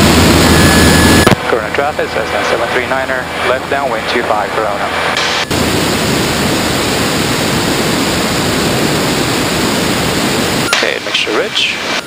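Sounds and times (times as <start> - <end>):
aircraft engine: 0.0 - 12.0
wind rushing over camera: 5.2 - 10.7.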